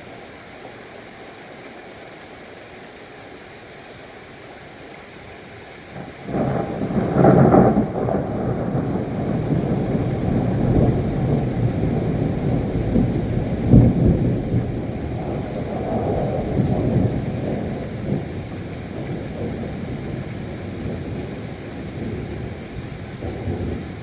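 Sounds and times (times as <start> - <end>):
heavy rain: 0.0 - 24.0
rolling thunder: 6.0 - 24.0.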